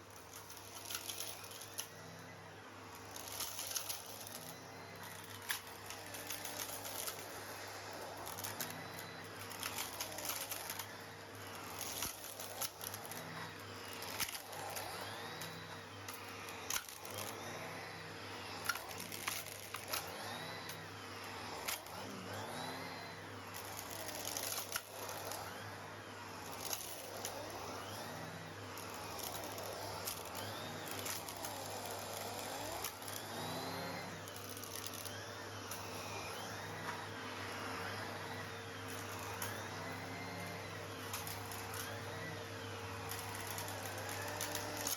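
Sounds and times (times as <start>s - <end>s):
vacuum cleaner humming: 0.0s - 44.9s
stones rattling through hose: 2.9s - 7.4s, 8.1s - 17.6s, 18.6s - 20.8s, 23.6s - 25.5s, 28.8s - 35.2s.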